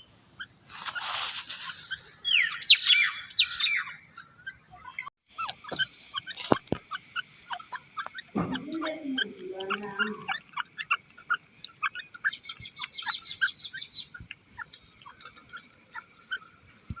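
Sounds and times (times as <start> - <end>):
francolin calling: 0.0 - 17.0
lower-pitched bird call: 1.0 - 4.0.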